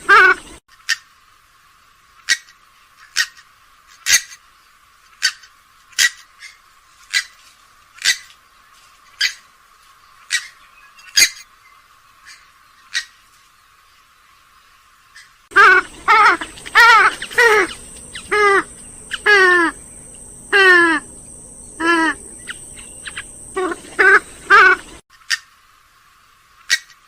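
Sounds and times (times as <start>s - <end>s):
swamphen short sharp calls: 15.2s - 25.4s.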